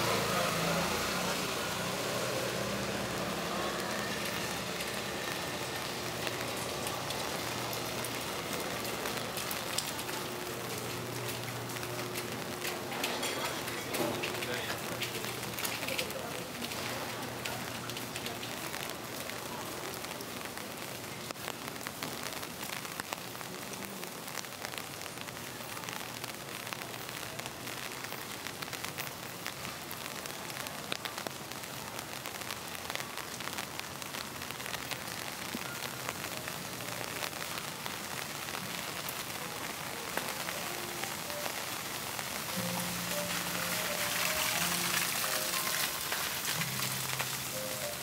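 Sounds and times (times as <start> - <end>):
rain falling on street: 0.0 - 48.0.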